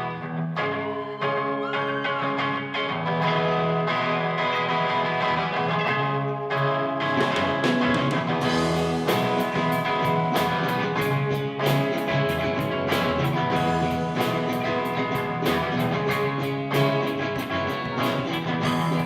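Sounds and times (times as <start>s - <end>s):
electric guitar: 0.0s - 19.0s
drum kit: 7.0s - 19.0s.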